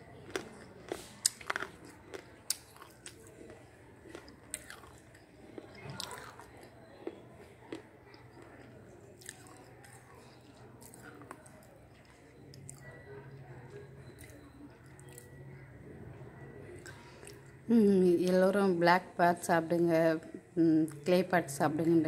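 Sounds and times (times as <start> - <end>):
crunchy chewing: 0.0 - 15.7.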